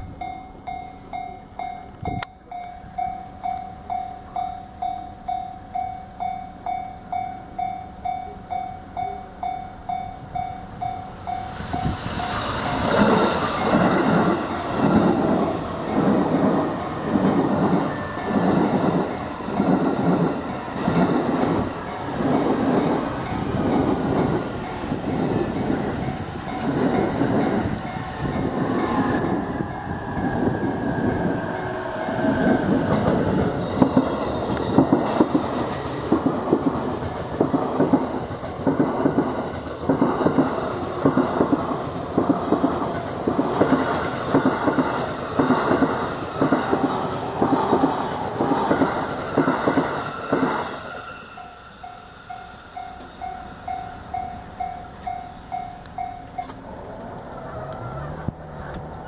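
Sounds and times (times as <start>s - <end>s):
train wheels clacking over rail joints: 11.4s - 29.6s, 32.0s - 50.9s.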